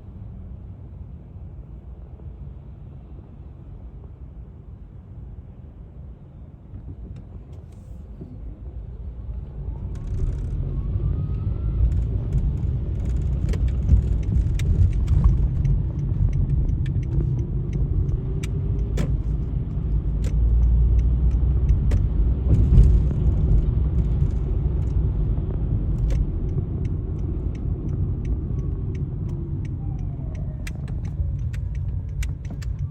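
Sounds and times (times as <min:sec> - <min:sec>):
sharp clicks: 0:26.0 - 0:32.9.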